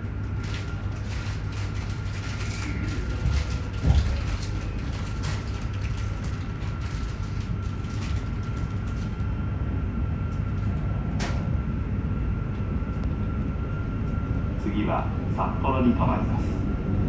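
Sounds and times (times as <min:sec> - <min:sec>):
train motors and wheels rumbling: 0:00.0 - 0:17.0
thin steady whine: 0:09.7 - 0:17.0.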